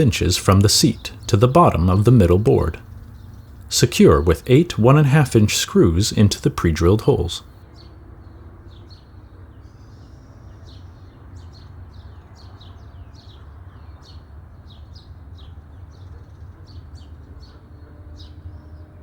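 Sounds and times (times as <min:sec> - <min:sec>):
small birds chirping: 0:00.0 - 0:07.5.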